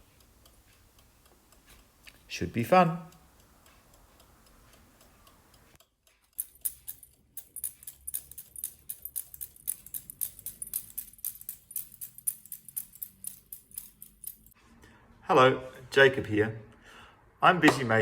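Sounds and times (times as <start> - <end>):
small sharp clicks and ticks: 3.1 - 14.6.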